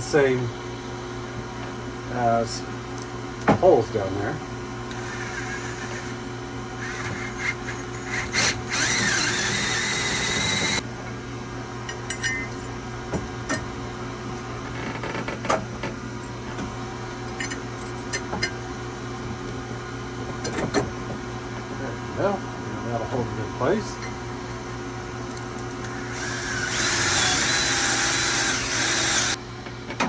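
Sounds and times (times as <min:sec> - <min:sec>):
power drill drilling into wood: 0:06.8 - 0:10.8, 0:25.9 - 0:29.4.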